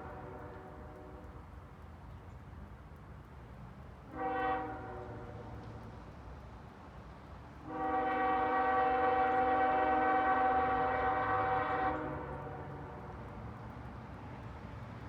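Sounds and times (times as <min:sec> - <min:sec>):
low train rumble: 0:00.0 - 0:15.0
locomotive air horn: 0:04.1 - 0:05.4, 0:07.6 - 0:12.7.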